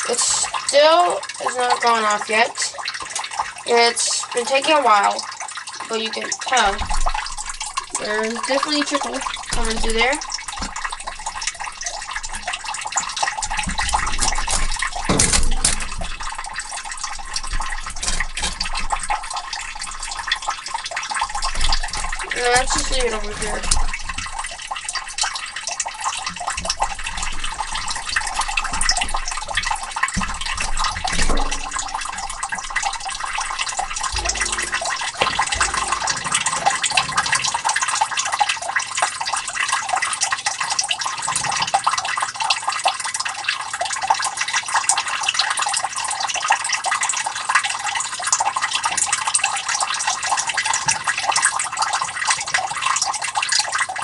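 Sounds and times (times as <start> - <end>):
water trickling into a pit: 0.0 - 54.0.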